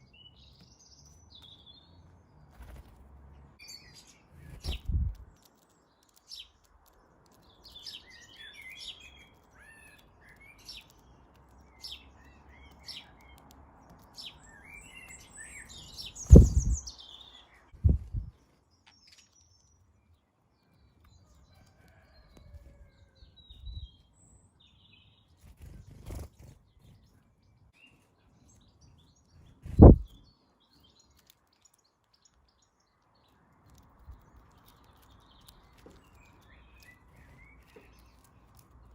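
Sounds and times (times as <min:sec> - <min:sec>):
birds chirping: 0:00.0 - 0:22.5, 0:23.5 - 0:38.9
loud low thumps: 0:16.3 - 0:16.9.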